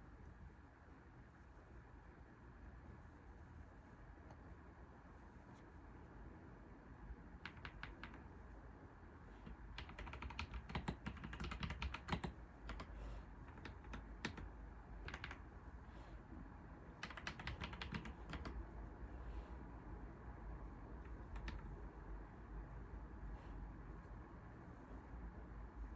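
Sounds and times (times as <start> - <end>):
typing on computer keyboard: 7.4 - 8.3, 9.4 - 15.5, 17.0 - 18.6, 21.0 - 21.8.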